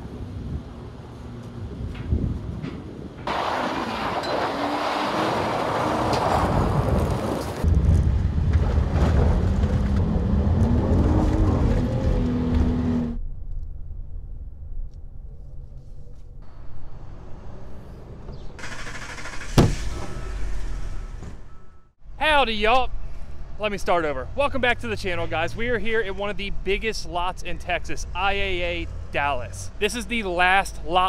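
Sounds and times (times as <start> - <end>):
car engine revving: 8.9 - 13.2, 16.4 - 21.2.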